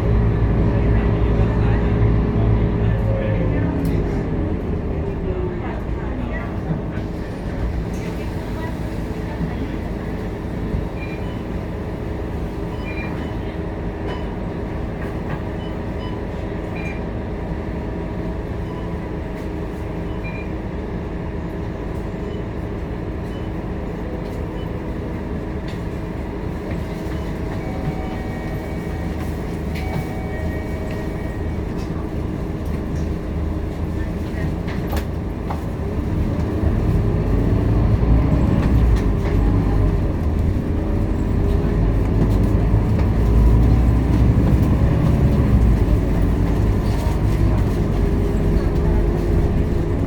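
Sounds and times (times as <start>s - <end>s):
bus diesel engine running: 0.0s - 50.0s
road and body noise: 29.2s - 50.0s.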